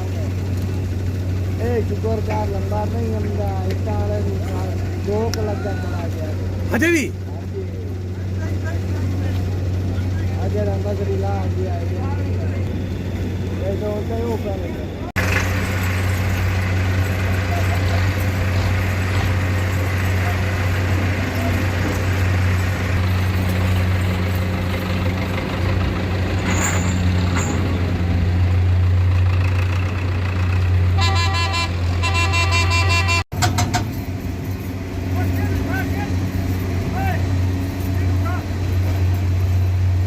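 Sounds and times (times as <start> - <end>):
tractor diesel engine running: 0.0 - 40.0
vehicle horn tooting: 30.9 - 33.2.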